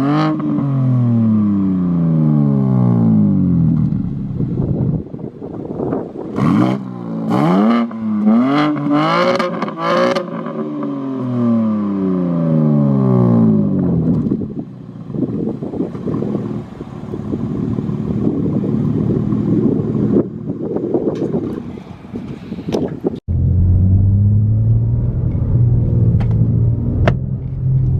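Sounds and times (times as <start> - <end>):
car engine revving: 6.2 - 14.4, 23.3 - 27.9
car engine idling: 13.8 - 21.0.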